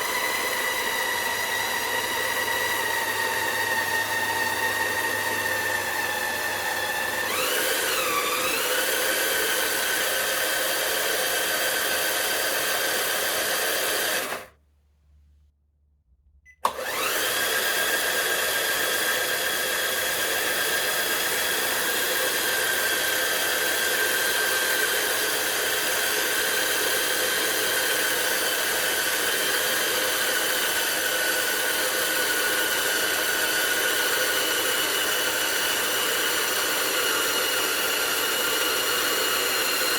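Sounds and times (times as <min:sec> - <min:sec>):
electric motor whining: 0:00.0 - 0:14.5, 0:16.7 - 0:39.9
click: 0:16.4 - 0:16.9.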